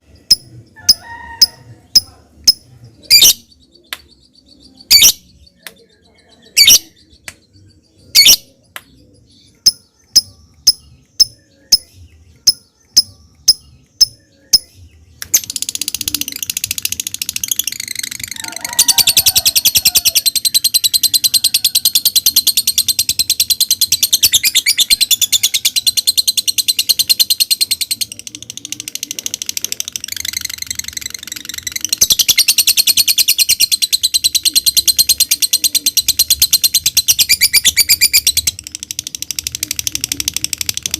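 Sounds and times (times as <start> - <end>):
lovebird high chatter: 0.3 - 3.7, 6.4 - 7.2, 15.3 - 40.9.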